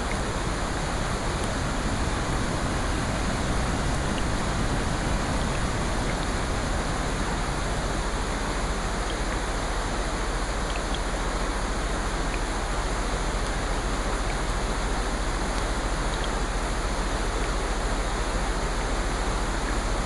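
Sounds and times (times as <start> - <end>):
rushing water: 0.0 - 20.0
faint ticks: 9.0 - 9.5, 10.7 - 11.2, 15.6 - 16.4.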